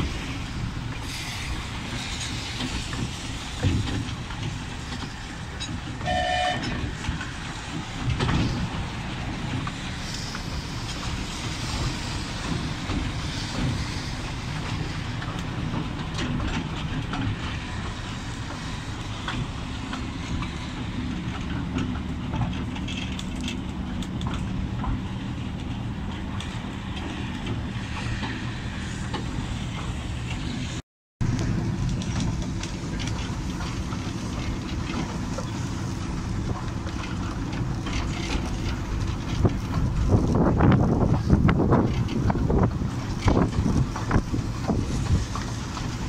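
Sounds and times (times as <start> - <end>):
train rumble and hum: 0.0 - 46.0
wind buffeting microphone: 0.0 - 46.0.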